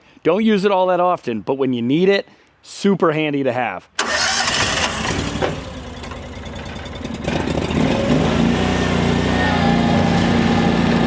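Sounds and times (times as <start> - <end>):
small engine revving: 4.0 - 11.0.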